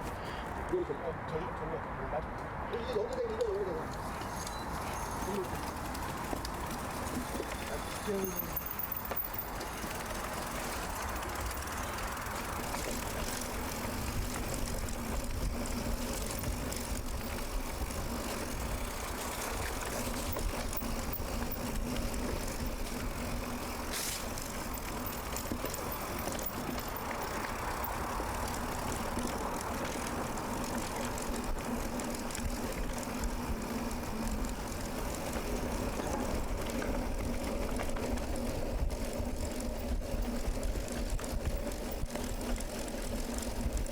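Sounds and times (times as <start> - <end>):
bike tyre and drivetrain rattle: 3.2 - 43.9.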